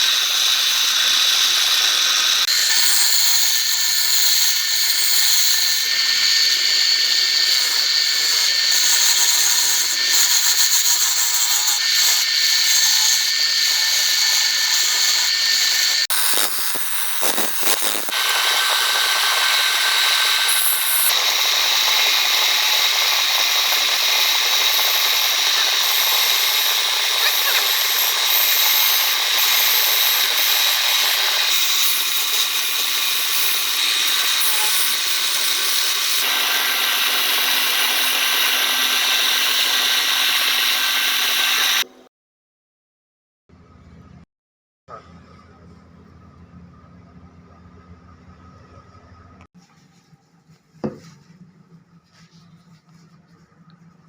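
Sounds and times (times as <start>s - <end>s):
power tool whining against wood: 0.0s - 41.9s.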